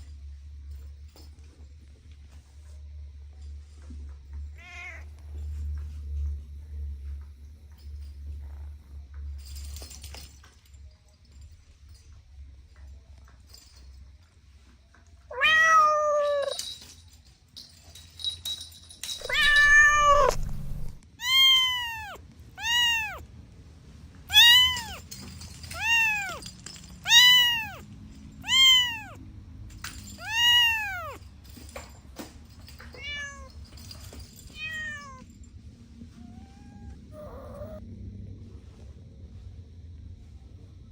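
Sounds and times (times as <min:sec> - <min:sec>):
cat meowing: 0:04.5 - 0:05.1, 0:15.3 - 0:16.6, 0:19.2 - 0:23.2, 0:24.3 - 0:25.1, 0:25.7 - 0:26.4, 0:27.0 - 0:29.2, 0:30.2 - 0:31.2, 0:33.0 - 0:33.6, 0:34.6 - 0:35.2, 0:36.2 - 0:37.8.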